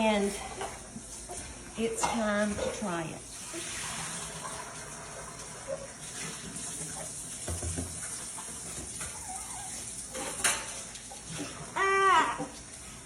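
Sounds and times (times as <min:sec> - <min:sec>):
liquid running: 0:00.0 - 0:13.0
dishes clinking: 0:01.9 - 0:02.9, 0:09.0 - 0:10.9.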